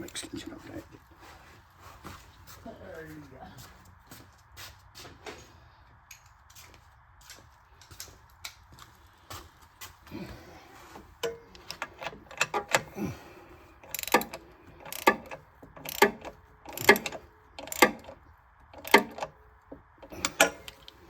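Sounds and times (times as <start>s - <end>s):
ratchet wrench clicking: 11.2s - 13.0s, 13.8s - 19.3s, 20.0s - 21.0s.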